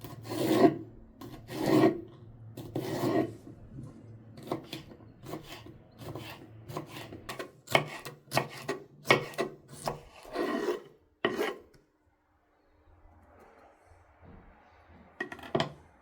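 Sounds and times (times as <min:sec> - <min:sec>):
scraping on wood: 0:00.0 - 0:03.6, 0:04.4 - 0:11.7.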